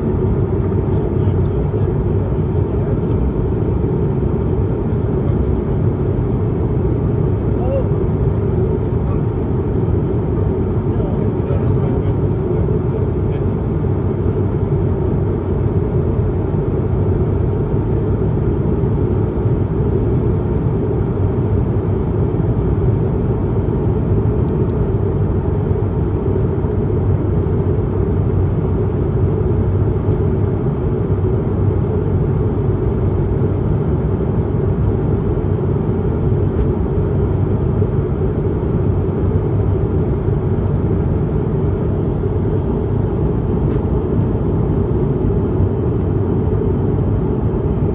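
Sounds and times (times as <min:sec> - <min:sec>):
airplane cabin drone: 0:00.0 - 0:47.9.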